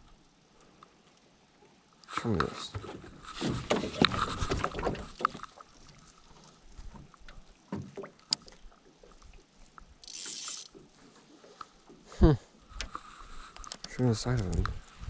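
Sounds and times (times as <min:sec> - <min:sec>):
water lapping against hull: 0:00.0 - 0:15.0
knocks and taps on a boat: 0:07.7 - 0:08.5.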